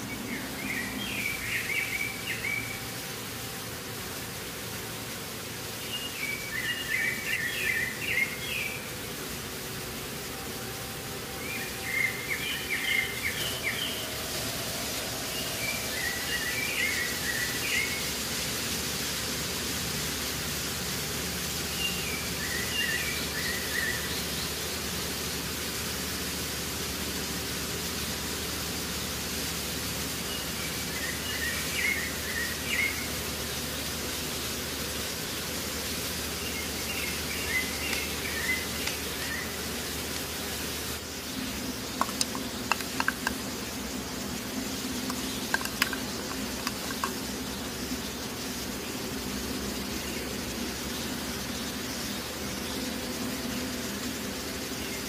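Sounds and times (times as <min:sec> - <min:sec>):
background hiss: 0:00.0 - 0:55.0
faint high hum: 0:00.0 - 0:55.0
songbird chirpy phrase: 0:41.0 - 0:55.0.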